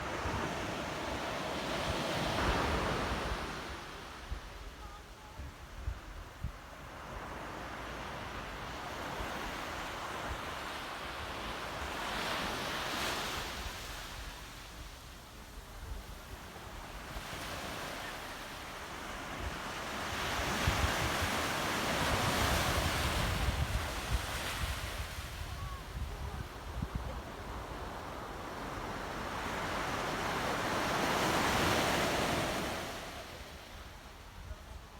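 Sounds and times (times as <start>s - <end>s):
sea waves washing in: 0.0s - 4.5s
wind rumble on microphone: 19.4s - 28.3s.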